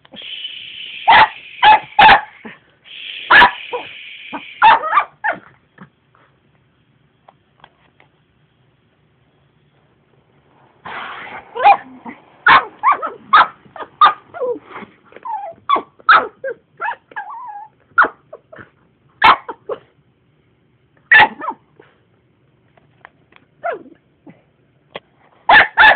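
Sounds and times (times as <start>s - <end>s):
dog barking: 1.0s - 2.6s, 3.3s - 5.4s, 11.6s - 14.6s, 19.2s - 19.8s, 21.1s - 21.6s, 25.5s - 25.9s
dog whining: 11.6s - 18.7s.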